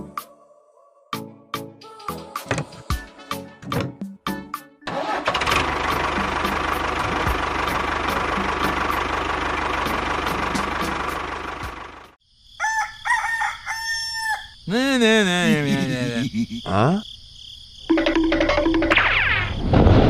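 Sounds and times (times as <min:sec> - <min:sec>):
rooster crowing: 0:12.5 - 0:15.8.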